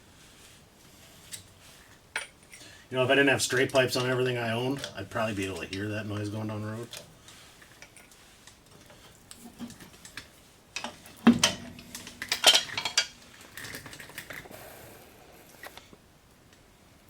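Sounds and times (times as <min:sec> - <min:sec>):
metal tools clinking: 0:10.8 - 0:14.4.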